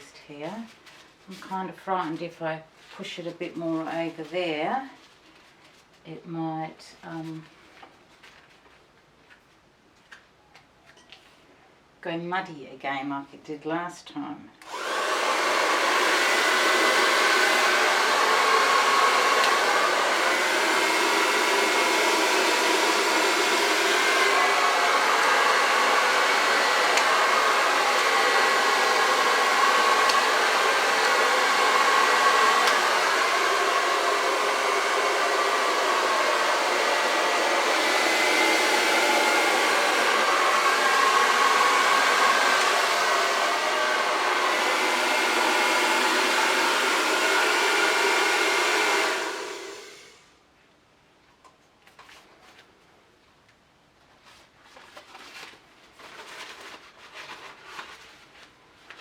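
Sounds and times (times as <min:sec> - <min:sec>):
hair dryer blowing: 0:14.6 - 0:50.3.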